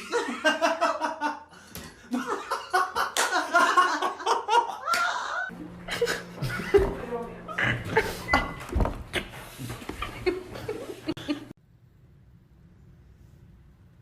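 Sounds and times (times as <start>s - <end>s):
person laughing hard: 0.0s - 6.9s.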